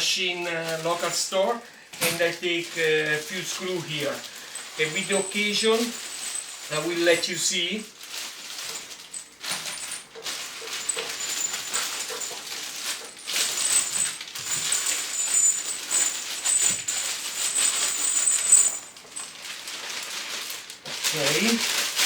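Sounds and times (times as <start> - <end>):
metal screws rattling and clinking: 3.9 - 7.7, 8.6 - 20.0.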